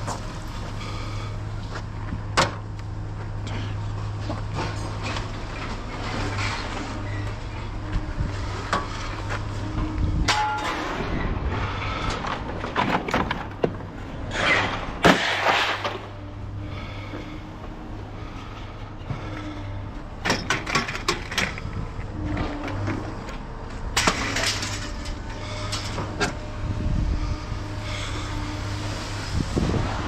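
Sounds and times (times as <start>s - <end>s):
scrap metal clanking and scraping: 3.3s - 16.3s, 18.2s - 30.0s
low engine hum: 15.9s - 30.0s.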